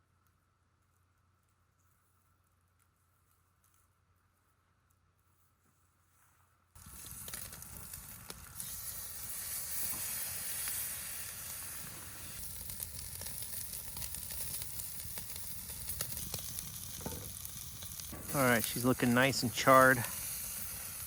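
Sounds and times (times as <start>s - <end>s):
small fire crackles: 0.0s - 21.0s
steak sizzling on a grill: 6.8s - 21.0s.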